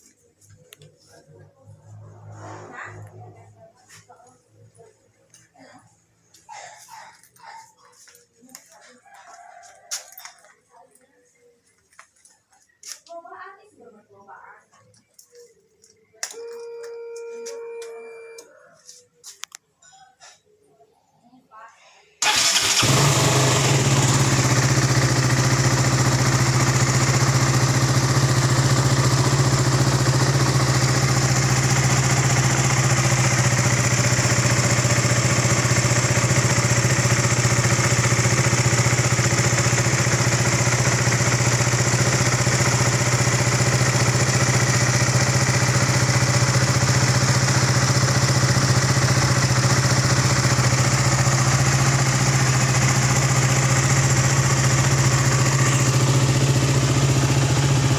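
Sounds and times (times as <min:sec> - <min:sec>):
motorcycle engine idling: 0:22.2 - 0:57.9.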